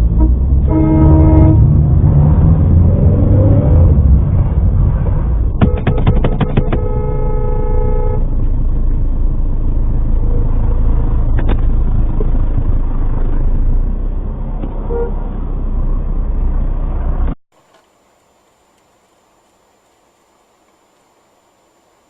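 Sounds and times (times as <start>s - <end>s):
traffic rumble: 0.0s - 22.0s
car horn honk: 0.2s - 1.8s, 5.6s - 8.3s, 14.8s - 15.3s
sharp clicks: 5.6s - 6.9s.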